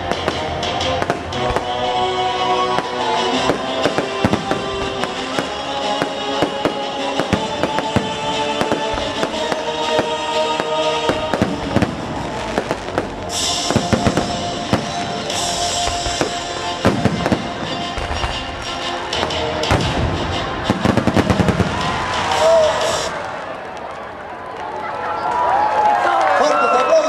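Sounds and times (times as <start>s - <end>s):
fireworks bangs and pops: 0.0s - 1.8s, 2.7s - 23.9s
fireworks crackling hiss: 2.7s - 18.4s, 20.8s - 23.6s.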